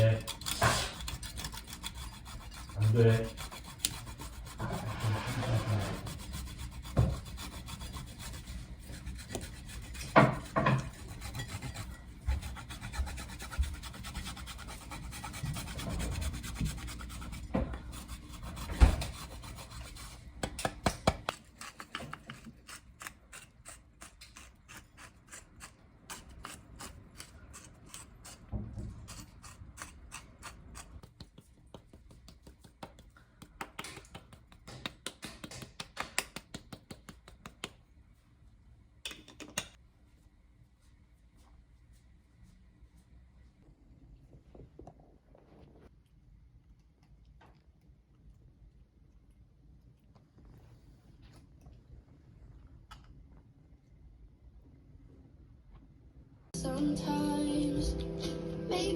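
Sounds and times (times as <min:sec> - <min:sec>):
rubbing and rasping: 0:00.0 - 0:33.1.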